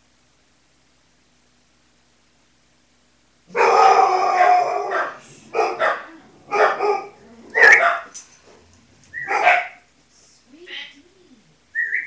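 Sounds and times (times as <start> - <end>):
dog barking and howling: 3.5 - 9.9.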